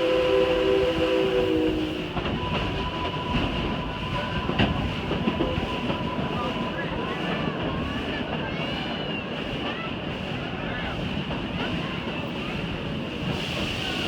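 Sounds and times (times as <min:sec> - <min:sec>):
steam locomotive whistle: 0:00.0 - 0:04.1
train cars clattering on track: 0:00.0 - 0:14.0.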